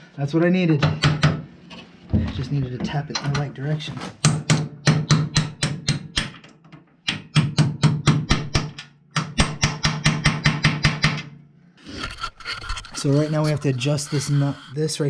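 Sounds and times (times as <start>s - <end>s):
steady low hum: 11.5s - 15.0s.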